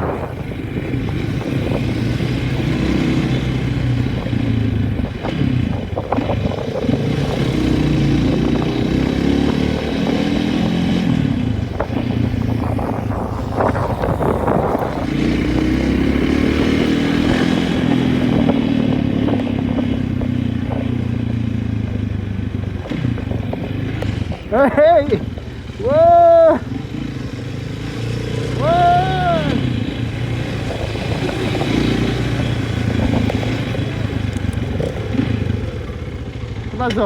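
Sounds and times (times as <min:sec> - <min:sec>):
engine running: 0:00.0 - 0:37.0.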